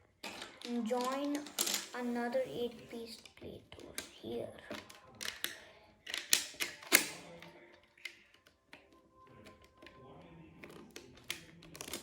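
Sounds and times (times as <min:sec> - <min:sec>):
plastic bricks clicking together: 0:00.2 - 0:02.0, 0:03.2 - 0:07.3, 0:10.6 - 0:12.0.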